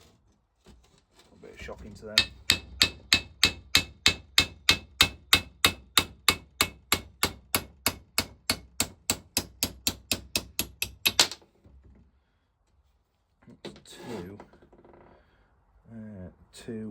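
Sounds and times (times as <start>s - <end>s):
hammer tapping on metal: 2.1s - 11.4s.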